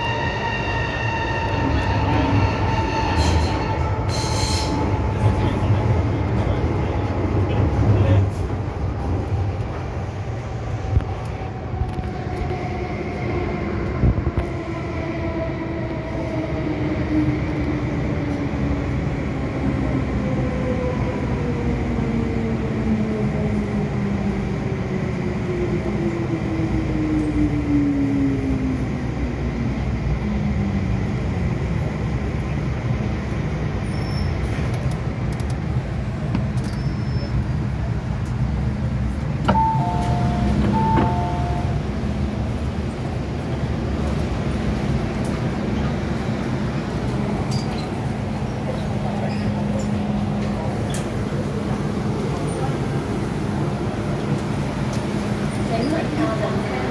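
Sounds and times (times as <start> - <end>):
train rail rumble: 0.0 - 56.9
two-note chime: 39.5 - 41.7.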